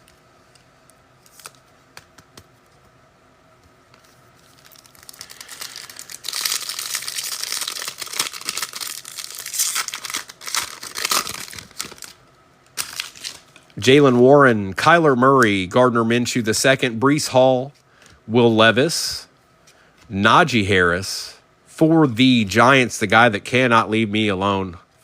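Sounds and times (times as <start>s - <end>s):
wrapper being torn and crinkled: 4.3s - 13.7s.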